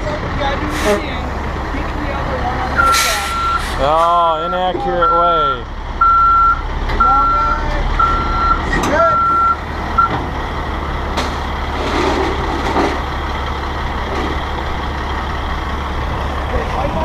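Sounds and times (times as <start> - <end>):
diesel truck engine running: 0.0 - 17.0
truck backup alarm beeping: 2.4 - 11.1.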